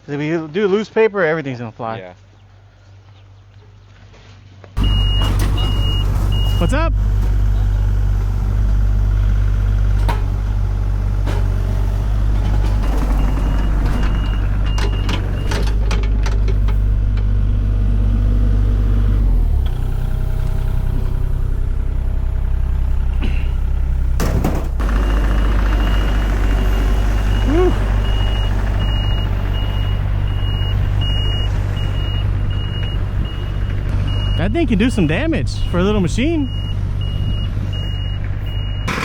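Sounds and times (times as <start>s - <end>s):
reversing alarm beeping: 4.8s - 6.9s, 12.9s - 15.8s, 24.8s - 39.0s
heavy equipment engine running: 4.8s - 39.0s.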